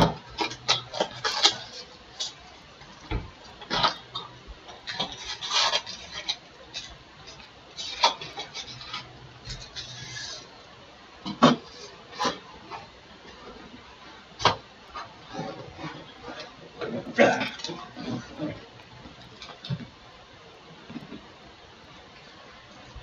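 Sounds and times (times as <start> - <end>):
card packs rustling and crinkling: 0.0 - 10.5.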